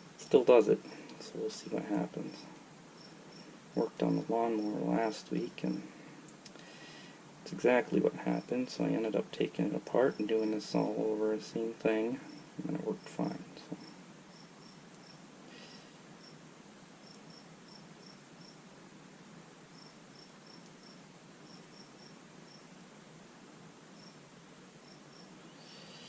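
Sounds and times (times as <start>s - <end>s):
crickets chirping: 0.0s - 6.0s, 9.8s - 18.7s, 19.7s - 22.8s, 23.8s - 26.0s
background hiss: 0.0s - 26.0s.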